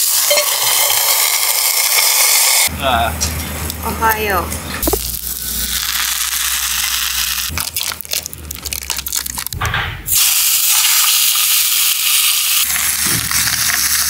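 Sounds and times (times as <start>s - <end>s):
food crackling and spattering: 4.8s - 14.0s
bacon sizzling in a pan: 5.0s - 7.5s, 10.1s - 14.0s.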